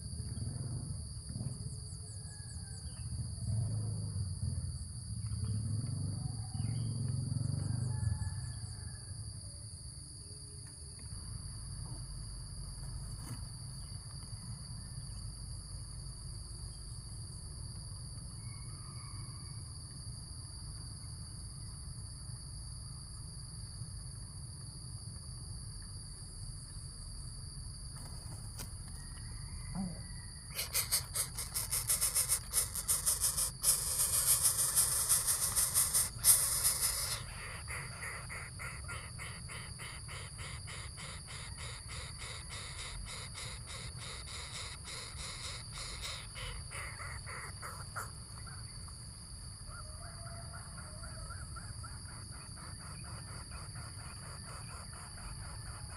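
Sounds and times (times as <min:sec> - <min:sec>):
high-pitched insect drone: 0:28.6 - 0:48.1
loud fast rattling buzz: 0:30.6 - 0:37.3.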